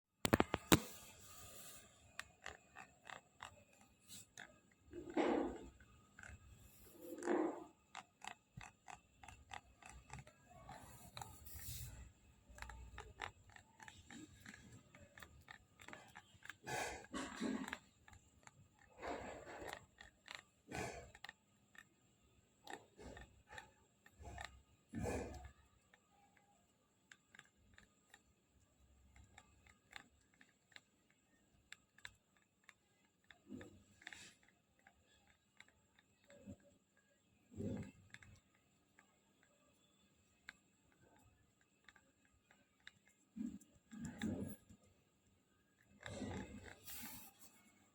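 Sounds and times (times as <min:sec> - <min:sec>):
tablet back panel clicking: 0:00.2 - 0:01.1
tablet back panel clicking and creaking: 0:00.2 - 0:22.0, 0:22.6 - 0:28.3, 0:29.0 - 0:45.0, 0:45.8 - 0:47.9.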